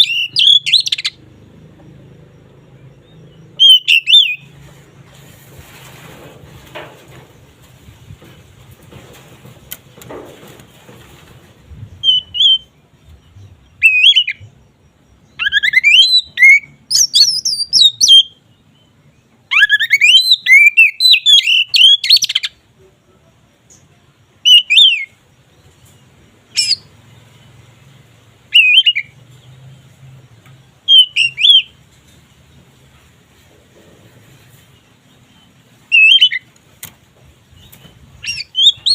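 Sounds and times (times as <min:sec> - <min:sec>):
songbird whistles and trills: 0:00.0 - 0:01.2, 0:02.4 - 0:04.8, 0:11.7 - 0:27.0, 0:28.4 - 0:29.4, 0:30.5 - 0:31.8, 0:34.7 - 0:36.9, 0:37.5 - 0:38.9.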